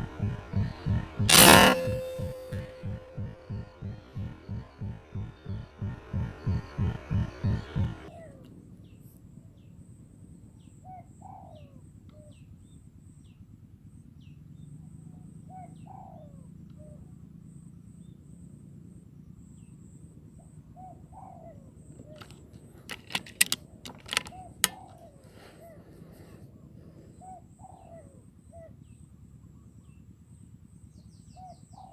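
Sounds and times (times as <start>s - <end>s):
sharp loud clicks: 0.0s - 8.1s, 22.2s - 25.0s
small birds chirping: 0.0s - 9.8s.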